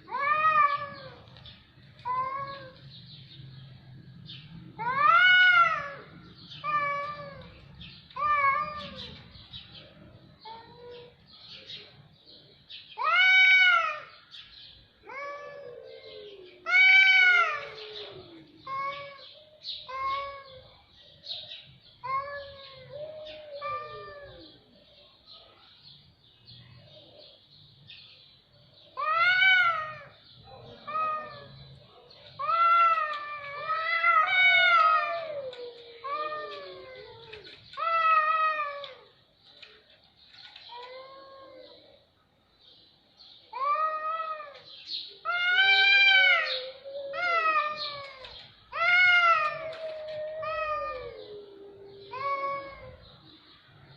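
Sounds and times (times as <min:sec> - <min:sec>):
cats meowing and yowling: 0:00.0 - 0:03.0, 0:04.6 - 0:09.4, 0:10.4 - 0:11.2, 0:13.0 - 0:14.2, 0:15.0 - 0:20.8, 0:22.0 - 0:24.8, 0:28.9 - 0:39.2, 0:40.6 - 0:42.0, 0:43.5 - 0:53.3.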